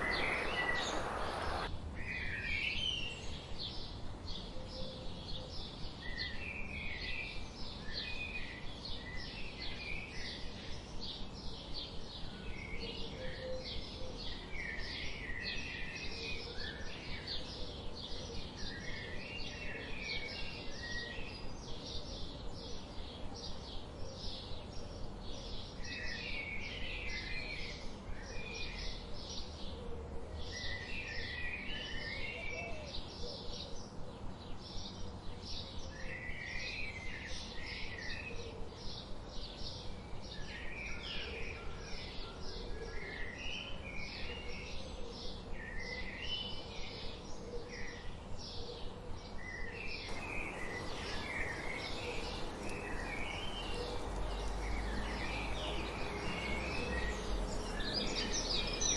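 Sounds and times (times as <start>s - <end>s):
bird high chip calls: 0.0s - 1.7s
bird warbling song: 0.0s - 58.9s.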